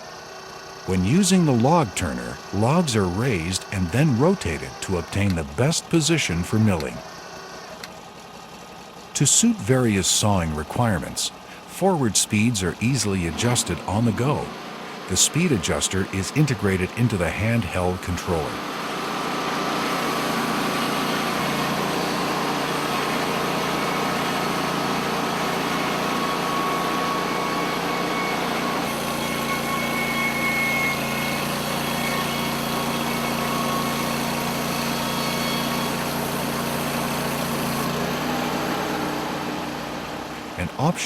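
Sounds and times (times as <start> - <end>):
engine running steadily: 0.0 - 27.9.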